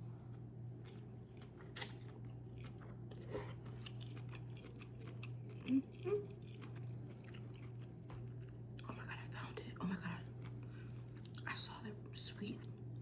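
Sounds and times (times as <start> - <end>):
steady low hum: 0.0 - 13.0
person chewing with wet clicks: 0.2 - 11.8, 12.4 - 13.0.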